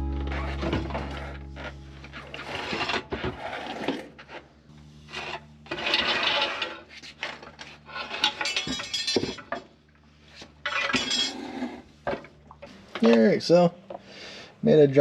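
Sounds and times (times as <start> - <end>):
scraping and rubbing with hand tools: 5.0 - 8.6.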